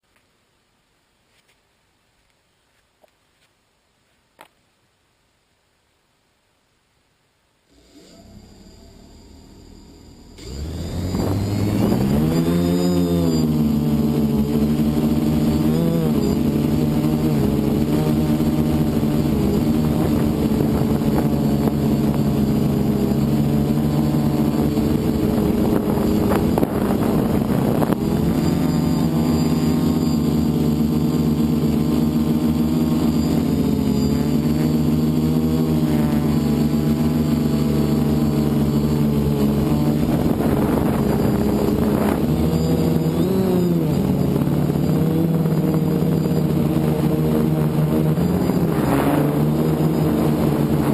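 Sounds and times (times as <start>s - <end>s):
drone motors buzzing: 7.7s - 50.9s.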